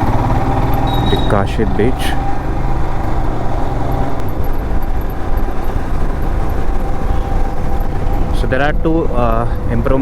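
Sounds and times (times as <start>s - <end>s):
motorcycle engine cruising: 0.0s - 10.0s
road noise: 0.0s - 10.0s
wind: 0.0s - 10.0s.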